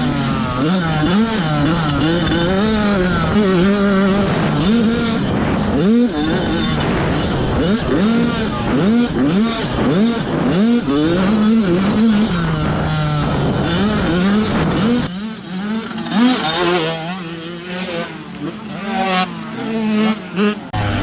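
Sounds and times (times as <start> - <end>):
motocross bikes revving: 0.0 - 21.0.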